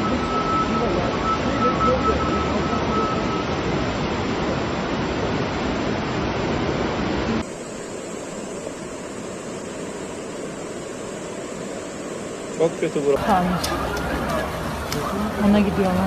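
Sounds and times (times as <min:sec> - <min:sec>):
rushing floodwater: 0:00.0 - 0:07.9, 0:09.8 - 0:16.0.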